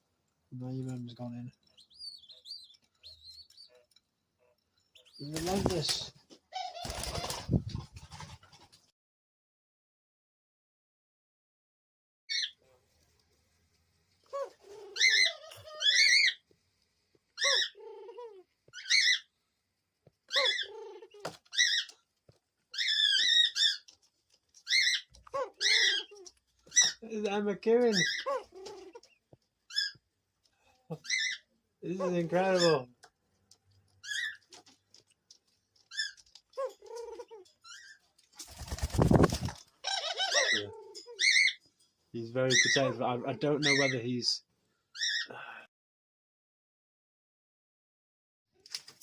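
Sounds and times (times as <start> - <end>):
young dove squeaky calls: 14.3 - 16.4, 17.4 - 19.3, 20.3 - 22.0, 22.8 - 24.0, 24.6 - 27.0, 28.0 - 30.0, 34.0 - 34.5, 38.6 - 41.6
young dove begging calls: 38.6 - 41.5.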